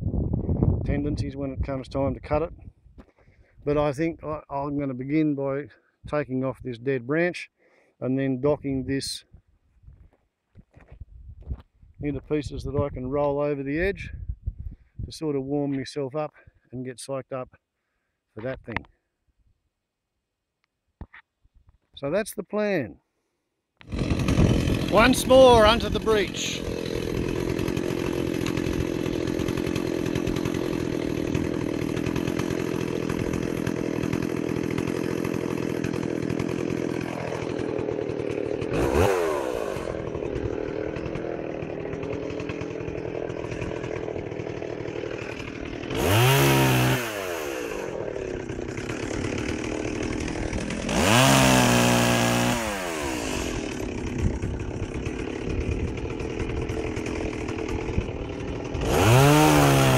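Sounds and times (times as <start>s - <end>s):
chainsaw idling and revving: 23.8s - 59.9s.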